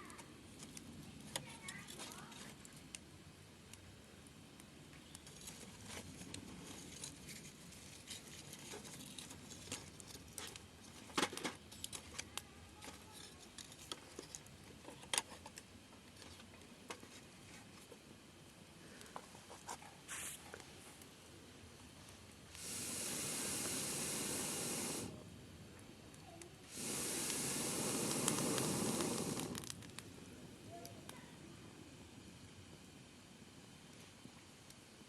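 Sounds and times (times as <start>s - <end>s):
campfire crackling and popping: 0.0s - 12.7s, 13.4s - 35.0s
brief hiss: 20.1s - 20.5s, 22.5s - 25.2s, 26.6s - 29.7s.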